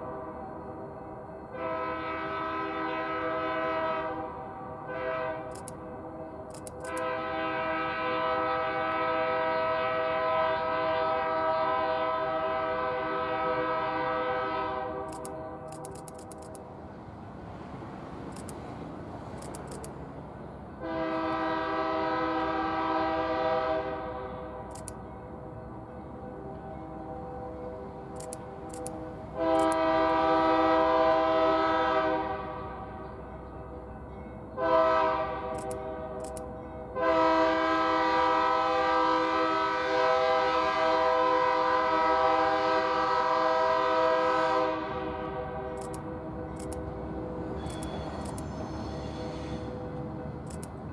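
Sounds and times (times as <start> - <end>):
locomotive air horn blast: 1.5 - 5.7, 6.8 - 16.0, 20.8 - 24.8, 26.4 - 33.1, 34.6 - 50.1
sharp clicks: 5.5 - 5.8, 6.5 - 7.0, 15.1 - 16.7, 18.3 - 18.7, 19.3 - 20.0, 24.7 - 25.0, 28.1 - 29.0, 35.5 - 36.5, 45.8 - 46.9, 47.6 - 48.5, 50.4 - 50.8.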